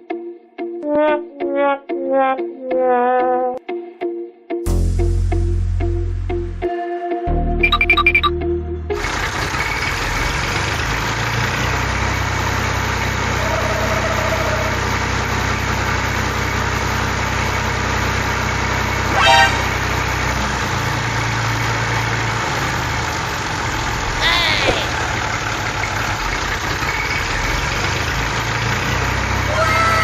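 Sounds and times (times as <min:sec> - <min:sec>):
engine idling: 0:08.9 - 0:30.0
horn honk: 0:13.3 - 0:14.8, 0:19.0 - 0:20.9.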